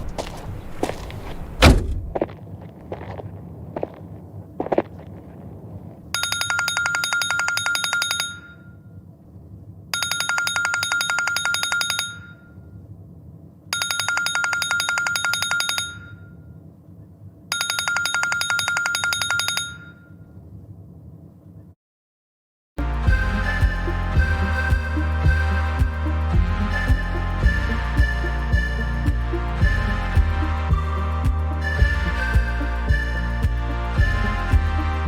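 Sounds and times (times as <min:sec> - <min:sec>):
phone bell ringing: 0:06.2 - 0:08.7, 0:10.0 - 0:12.5, 0:13.8 - 0:16.3, 0:17.5 - 0:20.1.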